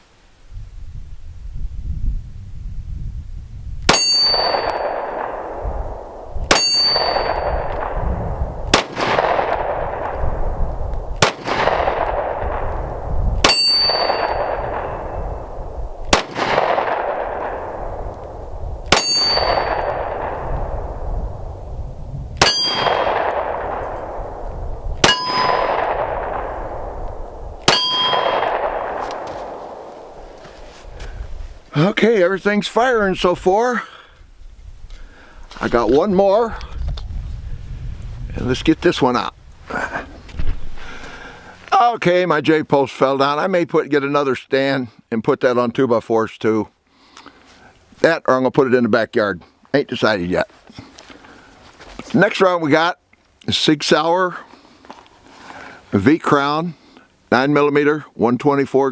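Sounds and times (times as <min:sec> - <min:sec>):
metallic ring of steel target: 0:03.9 - 0:05.4, 0:06.5 - 0:08.1, 0:13.4 - 0:15.4, 0:18.9 - 0:20.4, 0:22.4 - 0:23.9, 0:25.0 - 0:26.5, 0:27.6 - 0:29.0
pistol shots: 0:03.9 - 0:21.0, 0:22.4 - 0:30.4.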